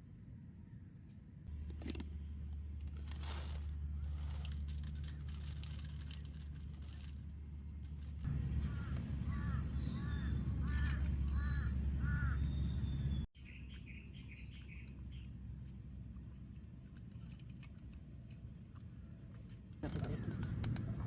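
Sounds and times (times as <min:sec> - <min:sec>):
high insect drone: 0:00.0 - 0:13.3, 0:13.9 - 0:21.0
bird calling: 0:08.2 - 0:15.3.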